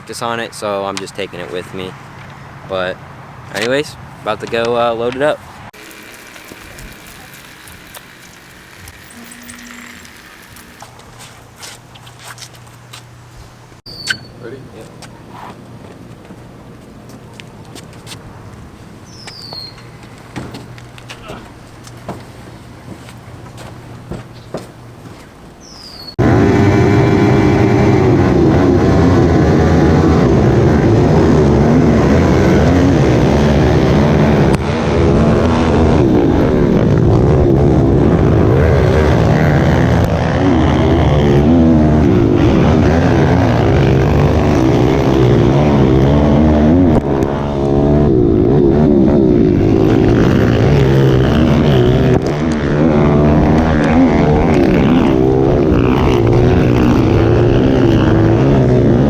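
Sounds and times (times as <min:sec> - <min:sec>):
dirt bike engine revving: 0:04.5 - 0:11.1, 0:25.6 - 0:59.0.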